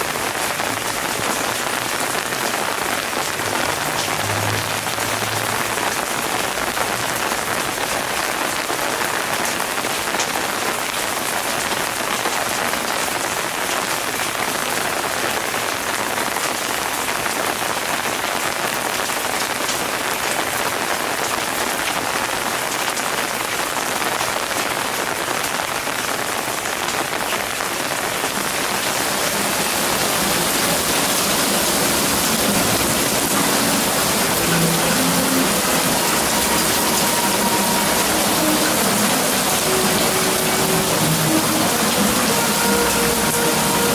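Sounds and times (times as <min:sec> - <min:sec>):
rain falling: 0:00.0 - 0:43.9.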